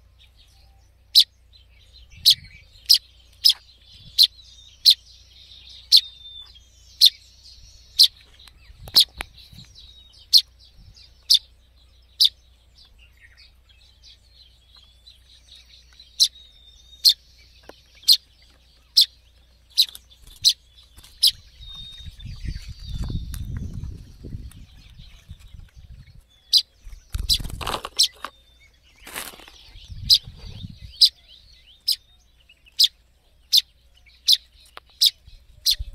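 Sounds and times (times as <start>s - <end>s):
fledgling bird chirping: 0.0s - 35.9s
rustling of handling and leaves: 17.5s - 30.6s
low rumbling: 19.5s - 27.8s, 29.6s - 31.8s.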